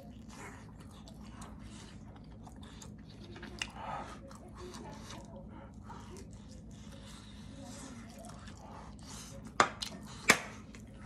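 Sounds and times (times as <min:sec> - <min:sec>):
person chewing dumplings: 0:00.0 - 0:11.0.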